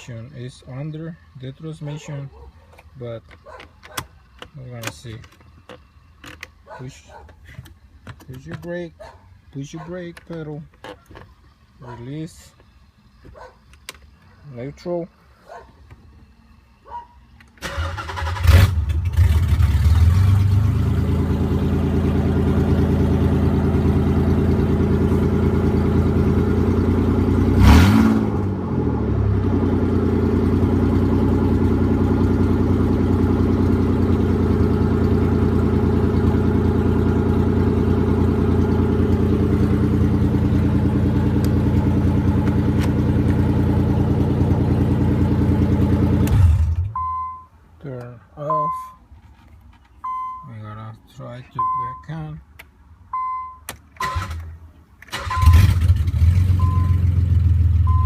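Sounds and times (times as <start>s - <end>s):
car engine cranking and idling: 0.0s - 58.0s
engine revving: 17.6s - 47.0s, 55.1s - 58.0s.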